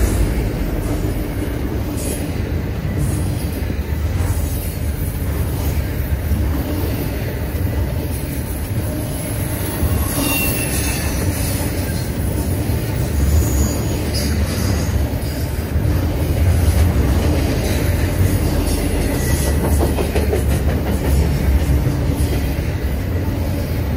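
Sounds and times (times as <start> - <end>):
freight train rumbling past: 0.0 - 23.9
high wheel squeals: 9.5 - 12.0.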